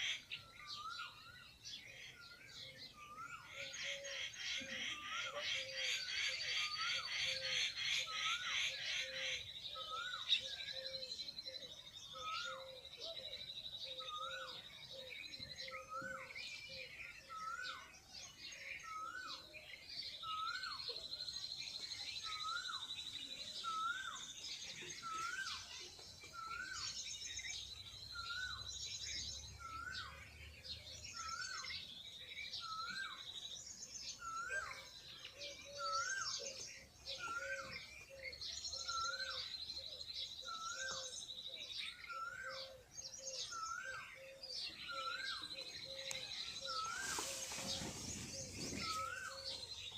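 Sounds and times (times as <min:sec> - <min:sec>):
high bird chirps: 0:43.5 - 0:49.9.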